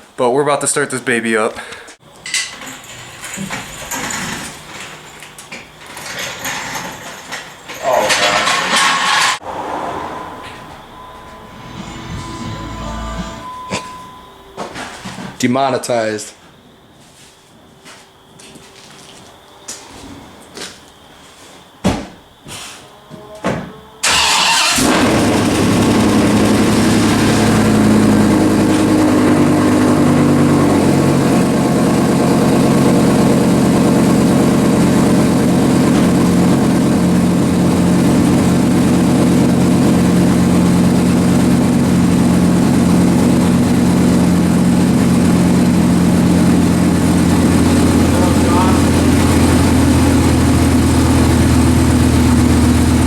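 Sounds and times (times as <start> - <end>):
engine starting and idling: 5.8 - 9.8, 24.0 - 53.0.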